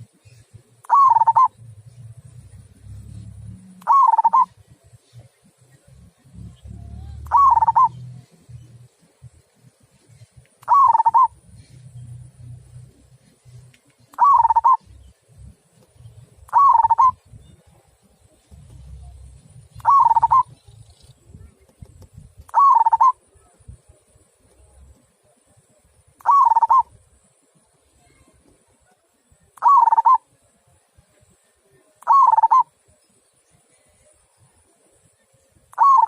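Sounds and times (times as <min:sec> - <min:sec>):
dove cooing: 0:00.8 - 0:04.6, 0:06.2 - 0:08.6, 0:10.6 - 0:12.6, 0:14.2 - 0:15.0, 0:16.5 - 0:17.3, 0:18.6 - 0:20.8, 0:22.5 - 0:23.3, 0:26.2 - 0:26.9, 0:29.6 - 0:30.3, 0:32.0 - 0:32.7, 0:35.7 - 0:36.0
low rumble: 0:01.5 - 0:03.9, 0:04.5 - 0:10.3, 0:17.1 - 0:22.5.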